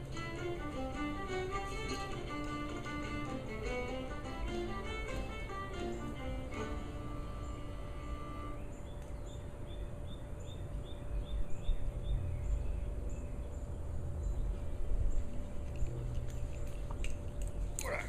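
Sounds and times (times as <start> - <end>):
music: 0.0 - 8.9
low rumbling wind noise: 0.0 - 17.8
small bird chirping: 8.3 - 15.8.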